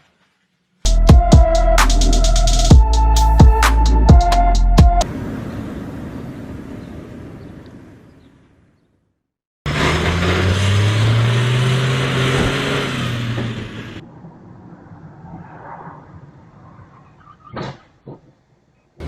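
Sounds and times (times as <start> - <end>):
traffic noise: 1.5 - 8.8, 9.7 - 19.0
road and wind noise: 2.8 - 9.1, 9.7 - 19.0
car engine accelerating: 9.7 - 16.8.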